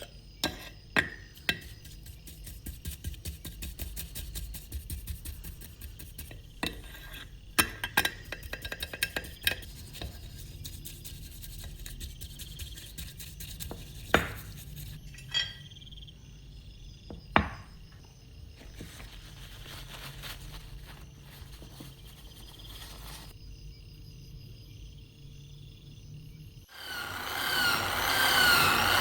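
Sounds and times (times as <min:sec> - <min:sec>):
metal tools clinking and tapping: 0:15.1 - 0:15.6
sharp knocks on workbench: 0:17.2 - 0:17.7.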